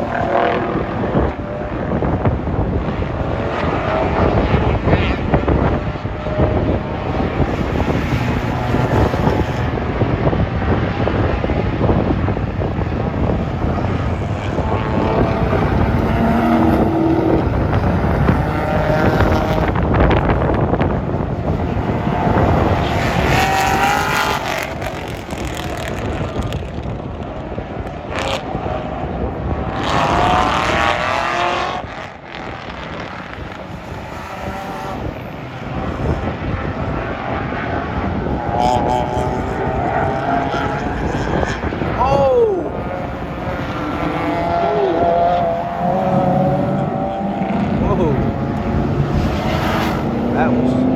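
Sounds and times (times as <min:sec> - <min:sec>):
race car engines revving: 0:00.0 - 0:50.9.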